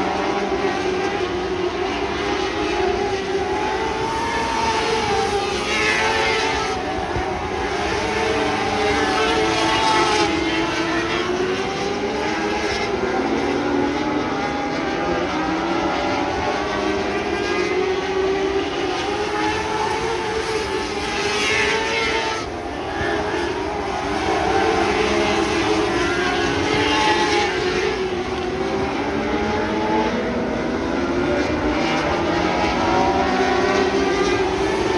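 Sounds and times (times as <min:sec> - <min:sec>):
race car passing by: 0:00.0 - 0:34.9
racing car engines at high revs: 0:00.0 - 0:34.9.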